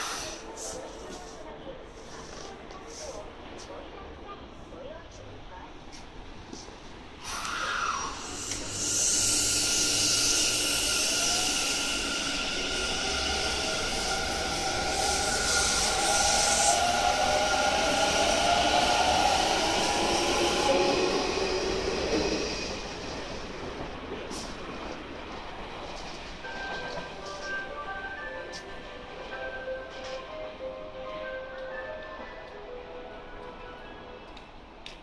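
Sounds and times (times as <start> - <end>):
air hiss: 0.0 - 0.9, 7.2 - 17.4.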